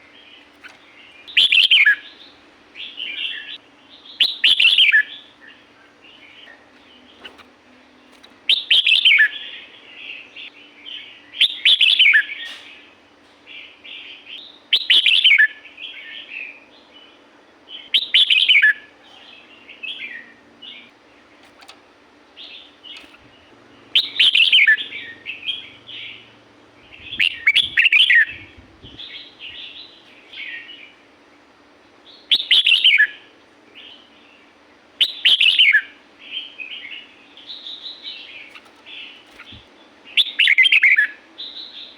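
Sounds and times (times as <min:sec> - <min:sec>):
bird whistled song phrases: 0:03.0 - 0:05.2, 0:24.0 - 0:26.2, 0:32.2 - 0:33.2, 0:35.0 - 0:35.9, 0:40.2 - 0:41.9.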